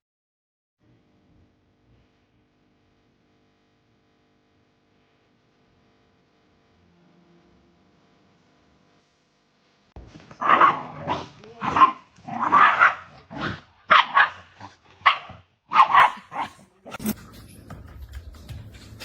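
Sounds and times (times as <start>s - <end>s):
dog barking: 10.3s - 17.2s.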